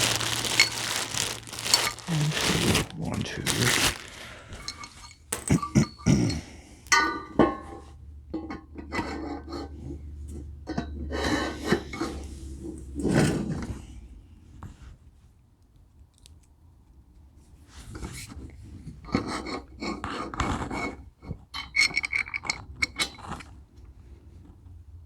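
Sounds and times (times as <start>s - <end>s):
metal parts clinking: 4.6s - 5.8s.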